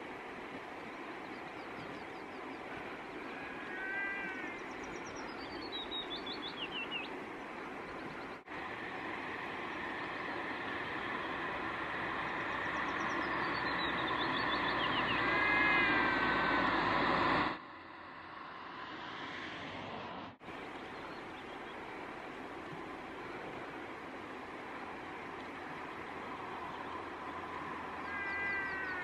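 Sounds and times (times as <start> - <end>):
small bird trilling: 28.0 - 29.0.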